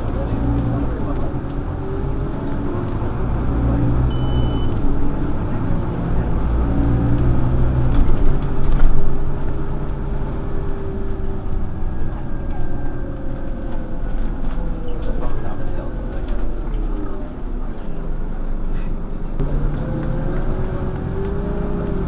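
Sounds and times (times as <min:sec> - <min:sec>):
bus diesel engine accelerating: 0:00.0 - 0:22.0
short high beep: 0:04.1 - 0:04.8.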